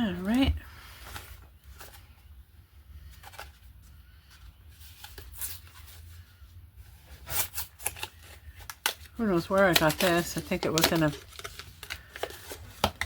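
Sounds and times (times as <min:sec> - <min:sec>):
low steady hum: 0:00.0 - 0:13.0
paper rustling and clicks: 0:07.7 - 0:13.0.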